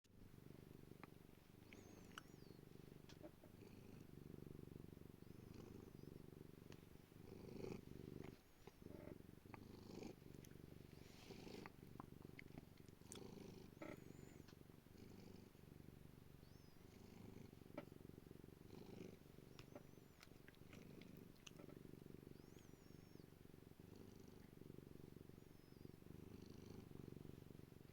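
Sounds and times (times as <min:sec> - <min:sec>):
cat purring: 0:00.1 - 0:27.9.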